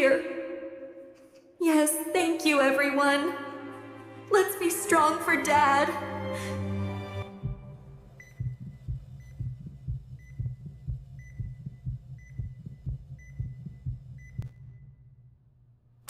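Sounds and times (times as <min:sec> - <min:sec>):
heart monitor beeping: 0:07.4 - 0:15.1
heartbeat double thumps: 0:07.4 - 0:15.3.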